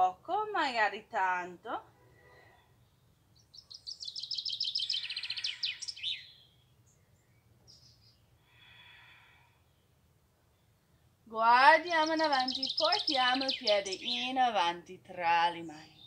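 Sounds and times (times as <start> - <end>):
songbird trilling: 3.4 - 6.6, 11.7 - 14.5.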